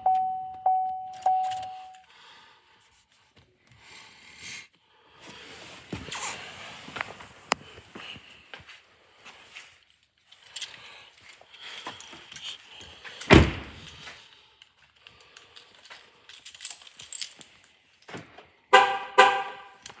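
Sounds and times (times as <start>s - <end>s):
keys jangling: 1.1s - 2.0s, 10.3s - 14.1s, 15.0s - 18.1s
car horn honk: 18.7s - 19.8s.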